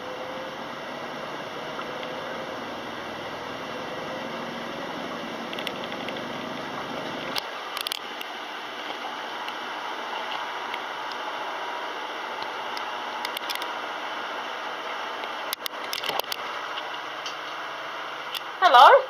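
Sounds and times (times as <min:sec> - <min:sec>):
steady hiss: 0:00.0 - 0:15.6
washing machine low rumble: 0:00.0 - 0:19.0.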